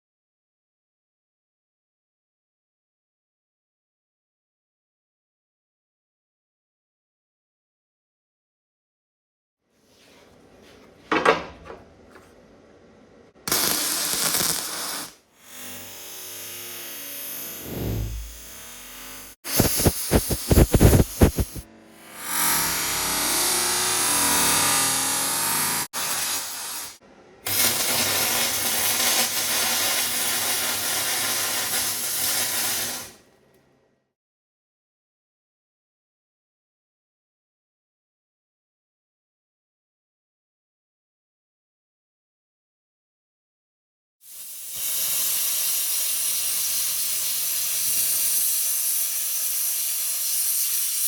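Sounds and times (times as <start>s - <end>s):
power tool hissing: 13.5s - 33.2s, 44.3s - 51.0s
loud rushing noise: 17.6s - 18.4s.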